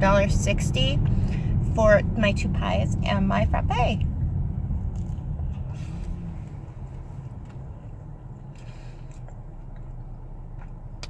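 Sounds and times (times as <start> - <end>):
car cabin road rumble: 0.0 - 11.0.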